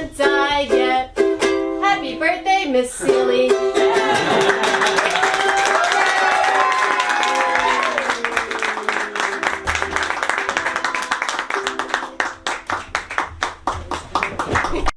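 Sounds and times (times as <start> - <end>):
audience cheering: 3.8 - 13.1
audience clapping: 4.1 - 14.9.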